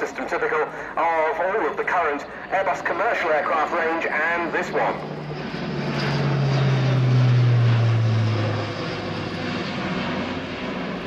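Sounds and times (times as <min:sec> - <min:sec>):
turboprop aircraft droning past: 0:00.0 - 0:11.0.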